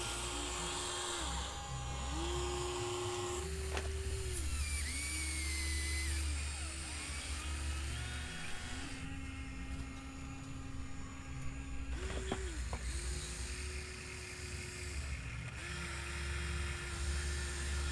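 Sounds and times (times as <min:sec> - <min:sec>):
electric motors whining: 0:00.0 - 0:17.9.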